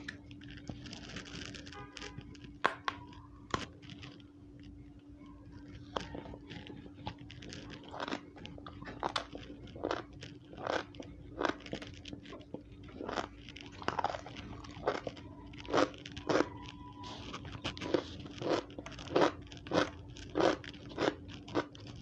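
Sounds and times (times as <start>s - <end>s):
steady low hum: 0.0s - 22.0s
crunchy biting and chewing: 5.8s - 22.0s.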